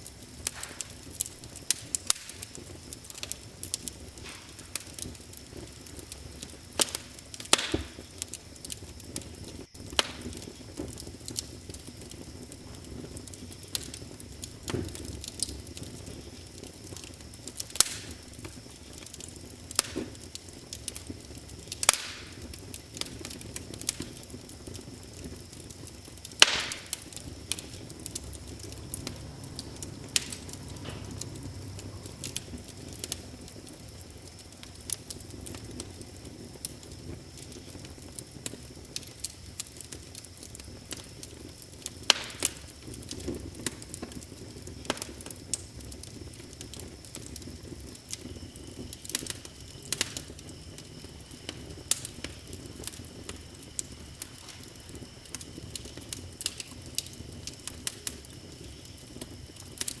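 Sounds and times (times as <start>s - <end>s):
fire crackling and popping: 0.0s - 60.0s
fire low rumble: 0.0s - 60.0s
loud wood snaps: 0.4s - 0.9s, 3.2s - 5.0s, 6.8s - 8.0s, 21.8s - 22.3s, 26.4s - 27.6s.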